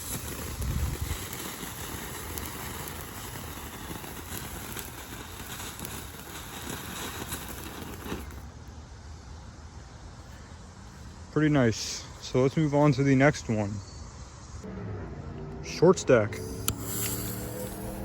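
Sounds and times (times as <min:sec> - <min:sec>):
crackles: 0:00.0 - 0:08.5, 0:16.4 - 0:18.0
firework fountain hissing: 0:00.0 - 0:08.6, 0:16.4 - 0:18.0.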